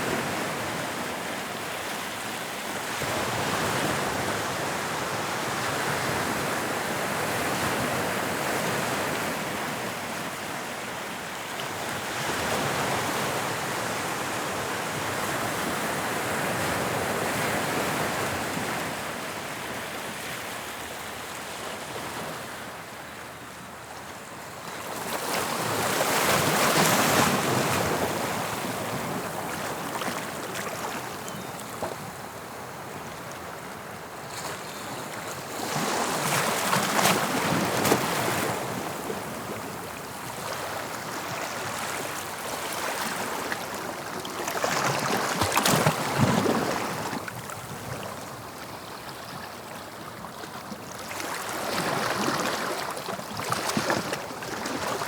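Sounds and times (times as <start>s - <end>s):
sea waves breaking on shore: 34.4s - 55.0s.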